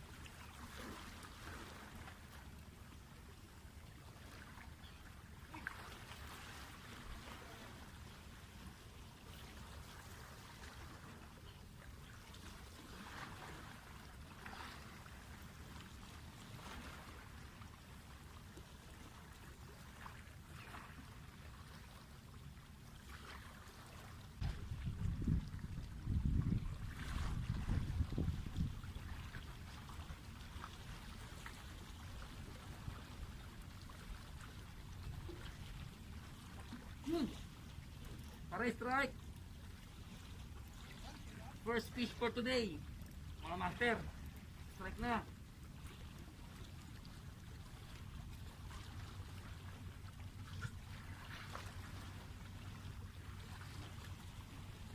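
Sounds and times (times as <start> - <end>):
faint rushing water: 0.0 - 54.9
wind rumble on microphone: 24.4 - 30.6.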